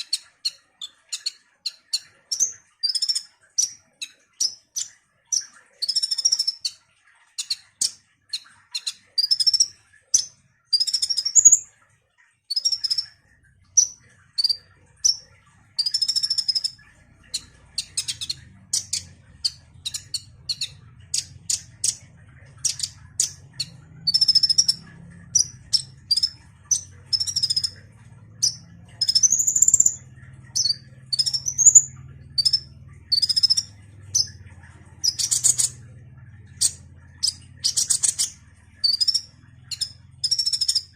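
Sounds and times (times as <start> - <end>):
sunbird singing high chirps: 4.4 - 6.8, 15.8 - 22.0, 22.6 - 27.8, 28.4 - 34.3, 36.6 - 40.9.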